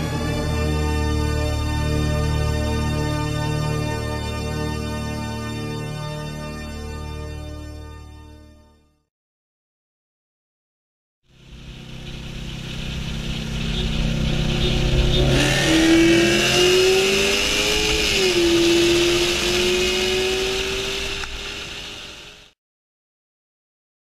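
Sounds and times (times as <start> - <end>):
car engine accelerating hard: 11.4 - 22.5.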